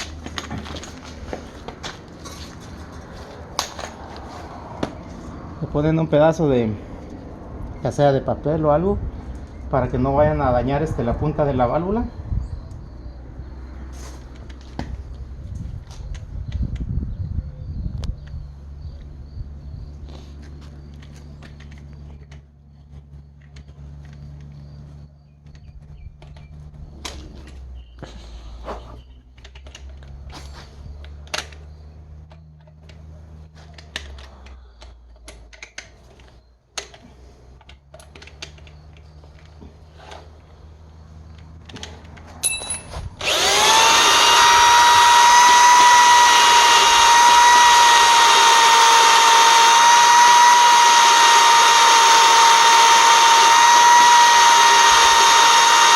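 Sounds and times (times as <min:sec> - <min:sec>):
electric drill running: 0:43.2 - 0:55.9.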